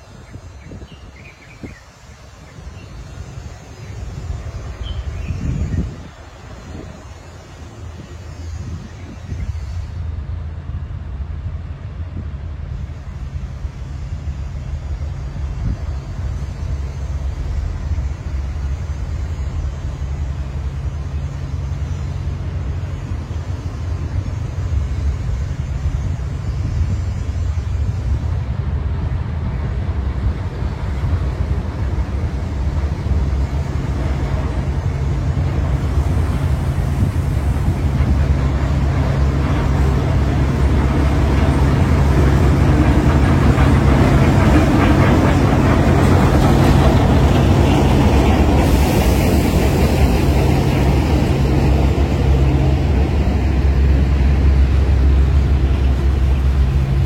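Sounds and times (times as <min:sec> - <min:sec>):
rushing noise: 0:12.7 - 0:57.0.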